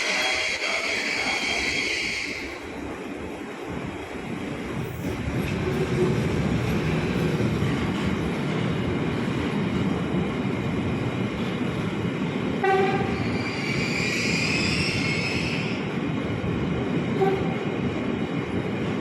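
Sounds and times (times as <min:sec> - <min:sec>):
train rumbling on rails: 0:00.0 - 0:19.0
train horn toot: 0:12.6 - 0:13.2, 0:17.2 - 0:17.7.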